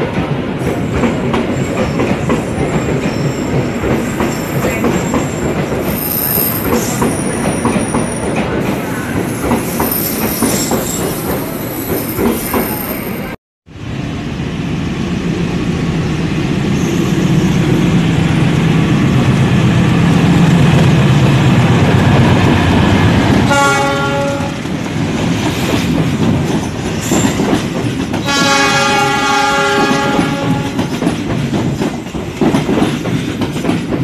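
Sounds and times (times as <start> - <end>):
train engine rumble: 0.1 - 34.0
train horn blasts: 23.4 - 24.6, 28.2 - 30.9
wheels clattering on rails: 24.3 - 34.0.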